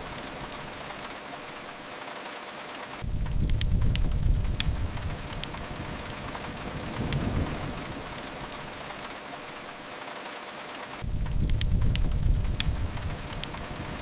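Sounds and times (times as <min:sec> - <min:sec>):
rain hiss: 0:00.0 - 0:14.0
wood fire crackling: 0:00.0 - 0:14.0
low rumble: 0:03.0 - 0:08.9, 0:11.0 - 0:14.0.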